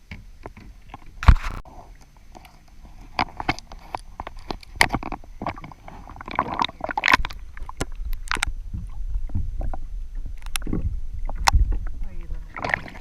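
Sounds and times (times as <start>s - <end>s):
water noise: 0.0s - 13.0s
steady low rumble: 6.8s - 13.0s.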